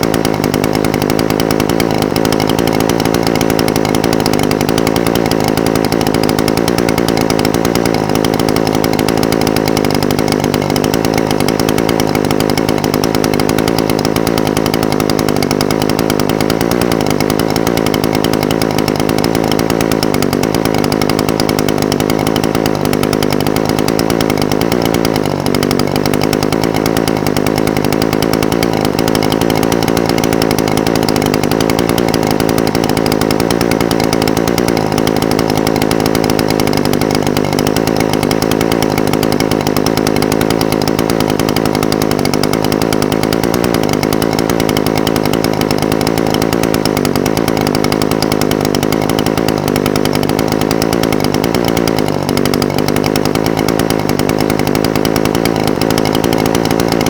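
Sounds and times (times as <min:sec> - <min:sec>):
brush cutter engine idling: 0:00.0 - 0:57.0.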